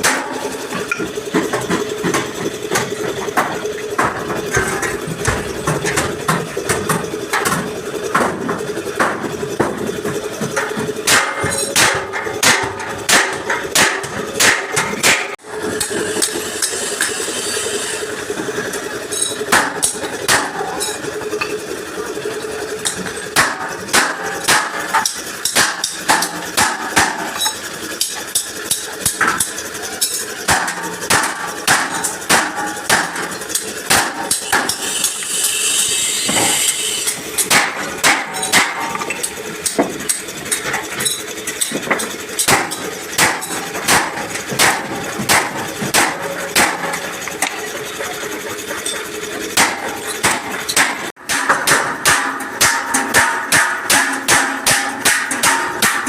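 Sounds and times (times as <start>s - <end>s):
hammer striking metal bumper: 0.0s - 17.2s, 19.1s - 21.6s, 22.8s - 47.7s, 49.5s - 56.0s
hiss: 16.2s - 18.1s, 34.7s - 37.1s.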